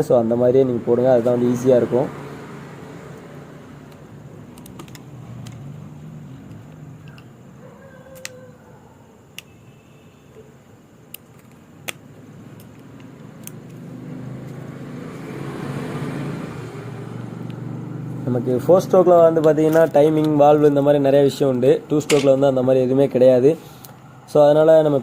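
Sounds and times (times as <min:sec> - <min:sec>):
low hum of road traffic: 0:00.0 - 0:25.0
clicks of tools and engine parts: 0:03.9 - 0:05.8, 0:06.4 - 0:07.4, 0:09.3 - 0:09.6, 0:11.1 - 0:13.8, 0:21.5 - 0:22.4, 0:23.7 - 0:24.1.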